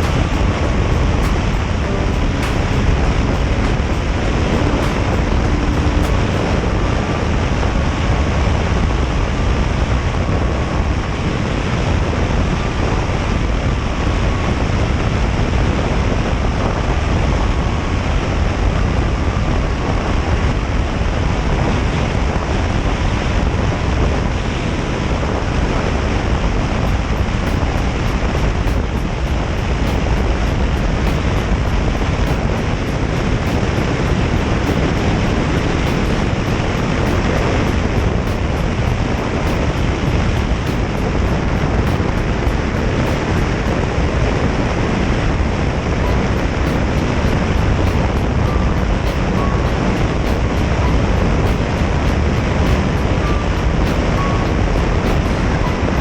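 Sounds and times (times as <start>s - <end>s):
motorcycle engine: 0.0s - 7.9s
road noise: 0.0s - 56.0s
wind rushing over microphone: 0.0s - 56.0s.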